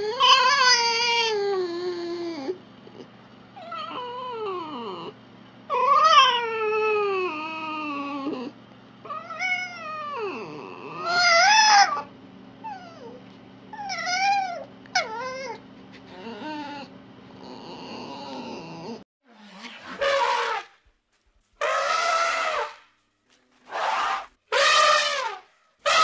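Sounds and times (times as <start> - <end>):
high-pitched animal calls: 21.6 - 22.8, 23.7 - 26.0.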